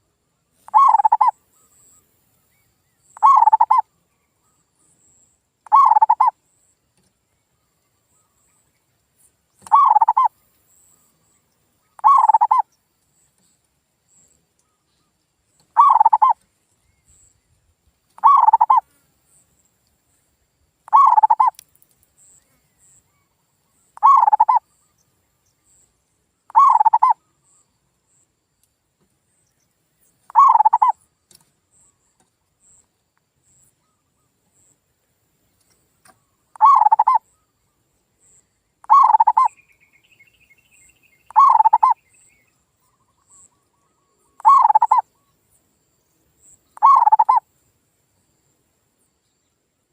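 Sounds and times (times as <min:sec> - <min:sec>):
dove cooing: 0:00.7 - 0:01.3, 0:03.2 - 0:03.8, 0:05.7 - 0:06.3, 0:09.6 - 0:10.3, 0:12.0 - 0:12.6, 0:15.8 - 0:16.4, 0:18.2 - 0:18.8, 0:20.9 - 0:21.5, 0:24.0 - 0:24.6, 0:26.5 - 0:27.2, 0:30.3 - 0:31.0, 0:36.6 - 0:37.2, 0:38.8 - 0:39.5, 0:41.3 - 0:42.0, 0:43.9 - 0:45.0, 0:46.8 - 0:47.4.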